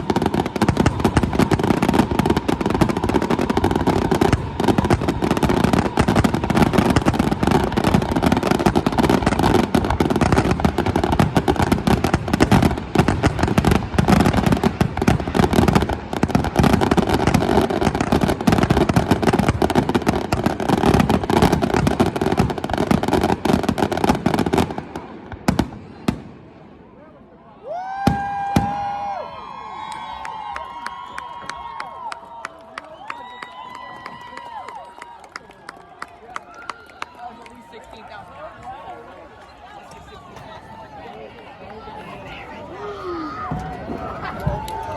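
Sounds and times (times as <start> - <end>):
fireworks bangs and crackles: 0.0 - 27.0, 27.9 - 30.6, 43.3 - 44.9.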